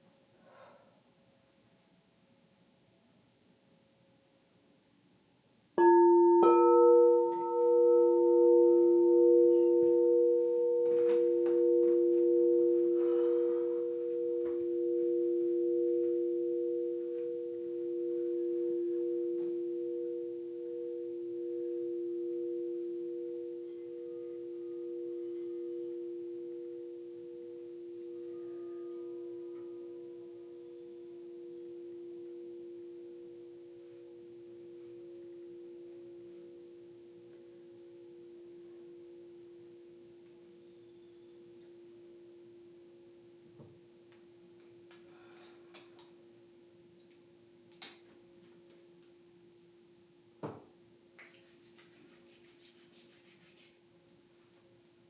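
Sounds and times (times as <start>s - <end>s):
singing bowls ringing: 5.8s - 47.1s.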